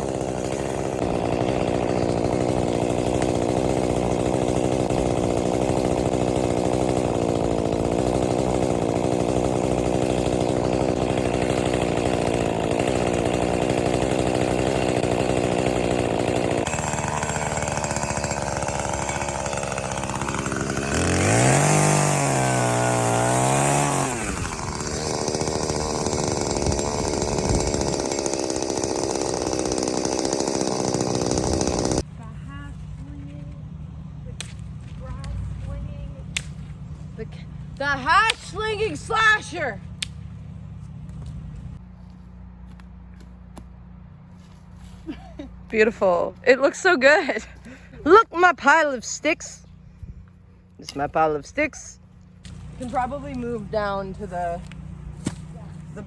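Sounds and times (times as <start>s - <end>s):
chainsaw engine running: 0.0s - 42.6s, 43.8s - 56.0s.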